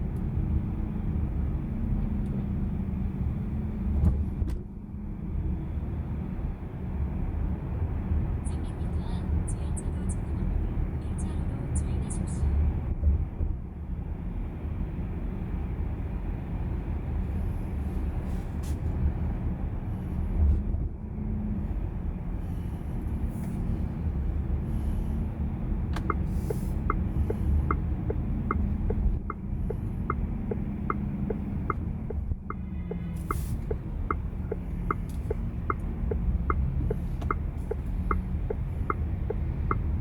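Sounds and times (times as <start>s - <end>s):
road and tyre rumble: 0.0s - 40.0s
turn signal ticking: 25.6s - 40.0s.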